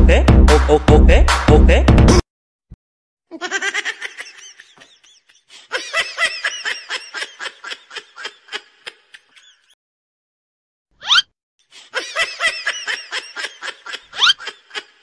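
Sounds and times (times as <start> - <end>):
fast ha-ha laughter: 3.3 - 9.7, 11.9 - 15.0.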